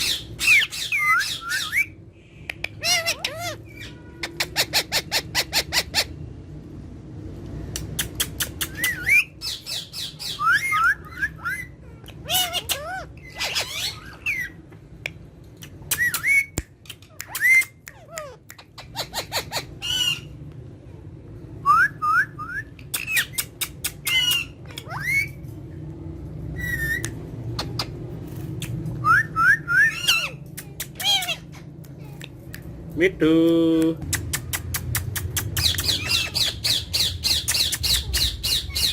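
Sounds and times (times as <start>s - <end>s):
parrots squawking: 0.0s - 2.0s, 2.7s - 6.2s, 8.0s - 14.7s, 15.6s - 20.4s, 22.9s - 25.5s, 26.5s - 28.0s, 29.0s - 31.7s, 35.0s - 38.9s
steady low hum: 0.0s - 38.9s.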